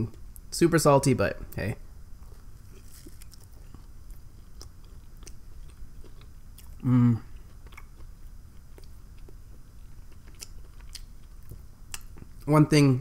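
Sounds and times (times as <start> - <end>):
chewing bread: 2.2 - 12.5
person vocal sound: 6.8 - 7.3.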